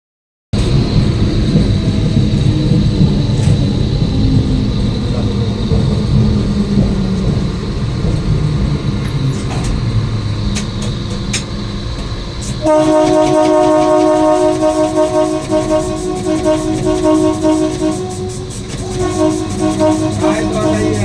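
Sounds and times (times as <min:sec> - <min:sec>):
train rumbling on track: 0:00.5 - 0:21.0
high whine: 0:12.5 - 0:21.0.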